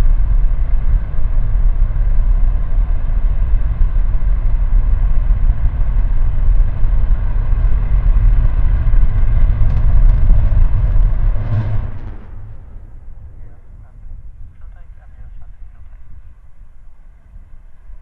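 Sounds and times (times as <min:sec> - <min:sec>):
rocket engine rumbling: 0:00.0 - 0:17.7
sharp crackles: 0:07.8 - 0:13.4.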